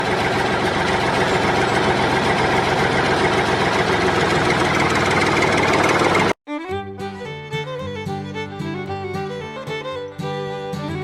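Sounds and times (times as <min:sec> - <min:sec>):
small engine running with rattle: 0:00.0 - 0:06.4.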